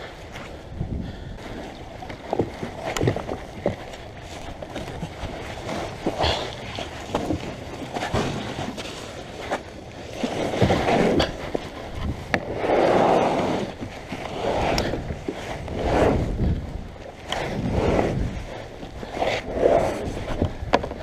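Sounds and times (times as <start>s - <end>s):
kayak paddle swishing: 0.1s - 21.0s
knocks and clicks against hull: 1.6s - 12.5s, 20.0s - 21.0s.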